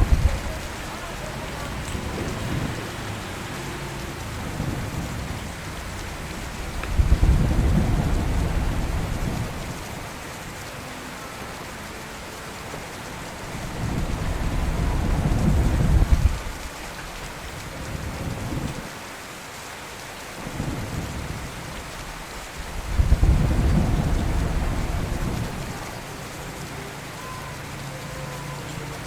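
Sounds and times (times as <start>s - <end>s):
thunder crack and rumble: 0.0s - 10.7s, 12.9s - 19.0s, 20.4s - 26.7s
steady rain: 0.0s - 29.0s.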